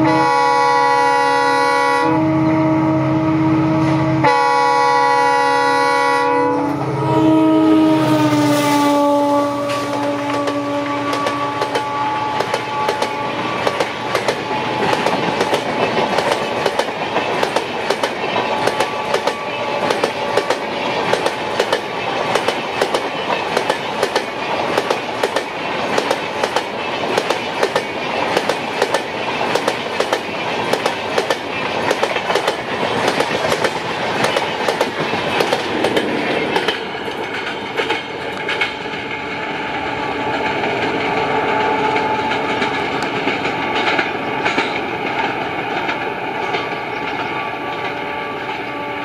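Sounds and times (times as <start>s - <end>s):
distant train drone: 0.0s - 49.0s
train wheels clicking over rail joints: 9.6s - 48.6s.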